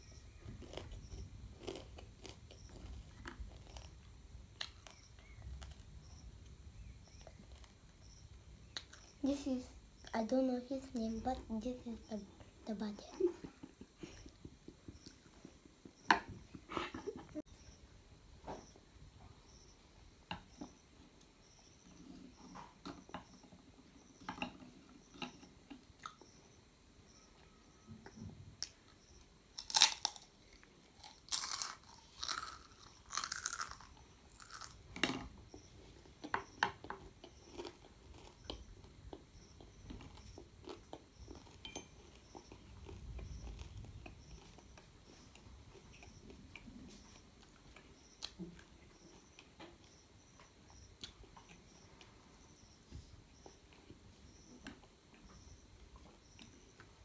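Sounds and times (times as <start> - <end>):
child chewing noodles: 0.0 - 10.2, 12.0 - 17.4, 29.5 - 52.3.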